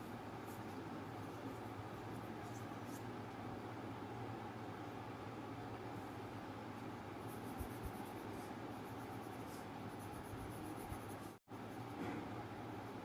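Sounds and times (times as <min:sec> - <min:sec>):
low hum and hiss: 0:00.0 - 0:13.0
drawing tool scratching paper: 0:07.3 - 0:12.0.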